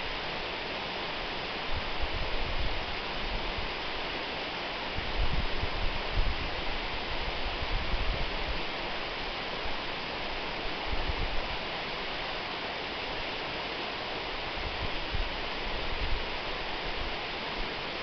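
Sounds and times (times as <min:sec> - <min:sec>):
waterfall rushing: 0:08.3 - 0:18.0.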